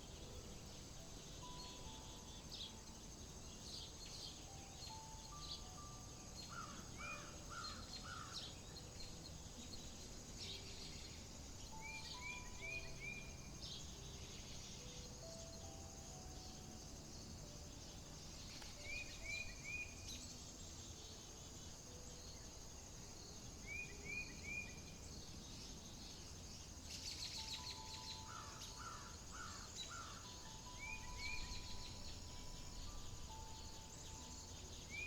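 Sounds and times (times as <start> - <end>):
high insect drone: 0.0 - 35.0
bird trills: 3.6 - 9.7, 10.5 - 16.7, 27.0 - 35.0
rising bird chirps: 27.0 - 35.0.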